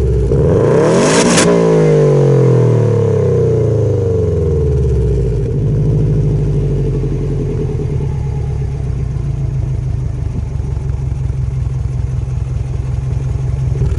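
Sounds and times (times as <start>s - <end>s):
car engine idling unevenly: 3.0s - 13.9s.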